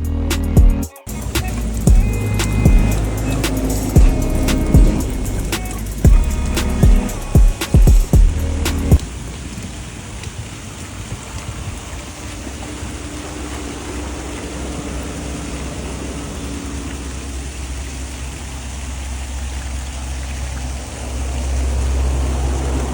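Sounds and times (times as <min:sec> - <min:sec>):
low rumble: 0:00.0 - 0:09.2
rushing water: 0:01.1 - 0:22.9.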